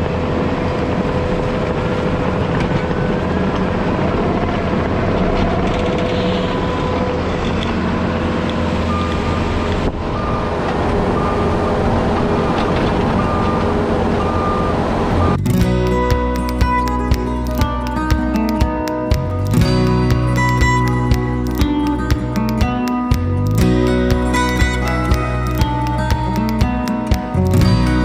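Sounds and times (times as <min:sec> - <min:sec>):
diesel engine running under load: 0:00.0 - 0:15.6
backup alarm beeping: 0:06.4 - 0:16.1
music: 0:15.1 - 0:28.0.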